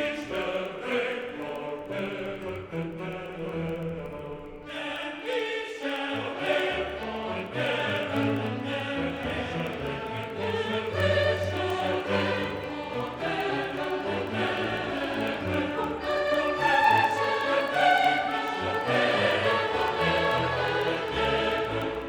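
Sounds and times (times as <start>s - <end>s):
choir singing: 0.0s - 22.0s
orchestral accompaniment: 6.4s - 22.0s.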